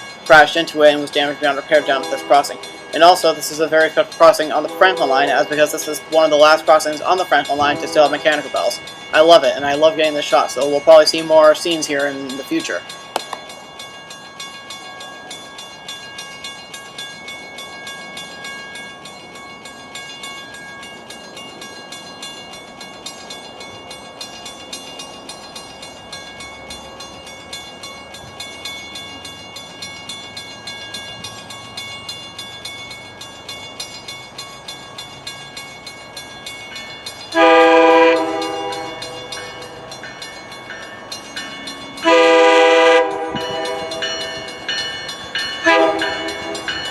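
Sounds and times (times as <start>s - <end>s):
crossing bells ringing: 0.0s - 46.9s
diesel train approaching: 0.0s - 46.9s
train air horn blast: 37.4s - 38.9s, 42.0s - 43.9s, 45.6s - 46.3s.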